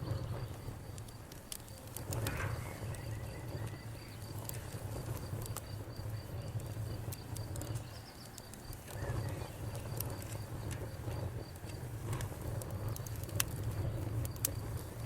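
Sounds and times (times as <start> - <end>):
cricket chirping: 0.0 - 11.8
campfire crackling: 0.0 - 15.0.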